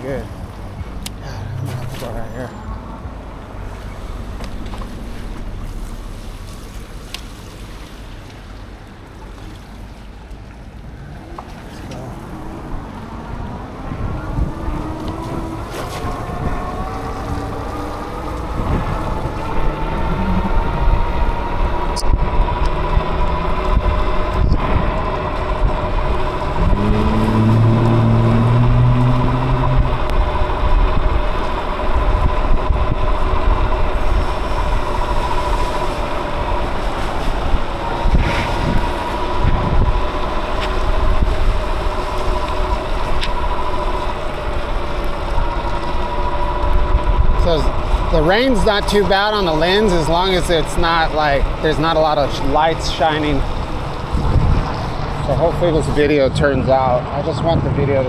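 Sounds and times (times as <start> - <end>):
low drone: 0.0 - 9.9, 10.8 - 57.8
wind on microphone: 11.2 - 58.0
electric bike motor whining: 12.2 - 55.8.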